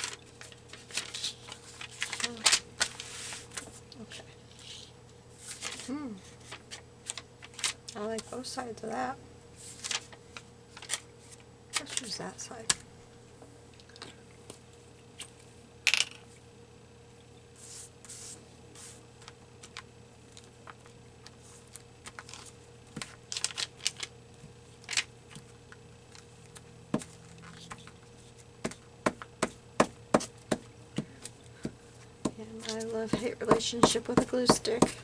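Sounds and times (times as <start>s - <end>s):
paper rustling: 0.0s - 8.3s, 9.6s - 12.2s, 17.6s - 25.5s, 26.2s - 28.8s
faint steady hum: 0.0s - 35.0s.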